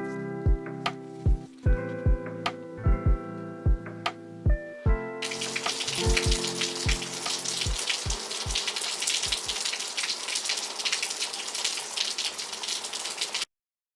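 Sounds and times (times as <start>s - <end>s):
kick drum thumps: 1.3s - 3.9s, 4.5s - 5.0s, 6.0s - 8.6s, 9.2s - 9.6s
steady rain pattering: 5.2s - 13.5s.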